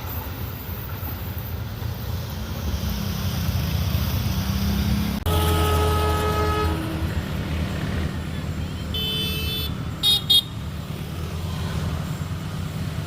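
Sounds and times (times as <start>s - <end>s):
locomotive engine rumble: 0.0s - 13.0s
short loud horn toots: 5.3s - 7.1s
locomotive air horn: 5.3s - 7.4s, 8.9s - 10.6s.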